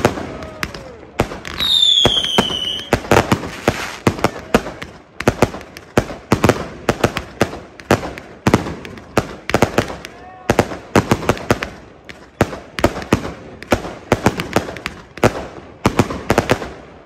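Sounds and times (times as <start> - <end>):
fireworks bangs and crackles: 0.0 - 17.0
firework whistle: 1.5 - 4.0.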